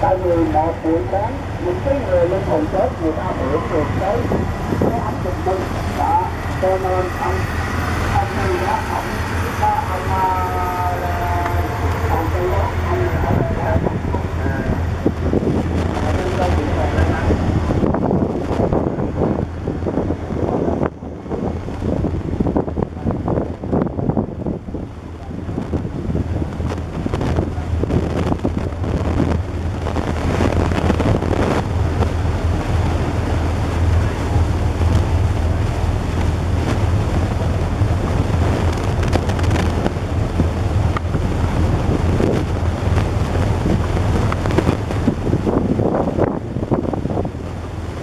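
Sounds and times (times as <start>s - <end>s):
boat engine drone: 0.0s - 48.0s
water rushing: 0.0s - 48.0s
wind buffeting microphone: 0.0s - 48.0s.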